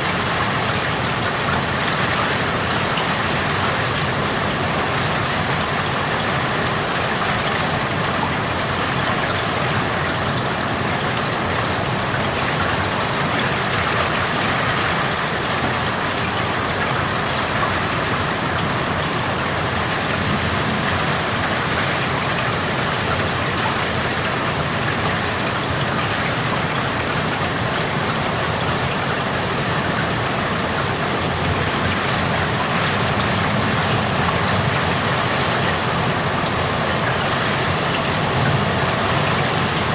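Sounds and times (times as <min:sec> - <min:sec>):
steady rain hissing: 0:00.0 - 0:39.9.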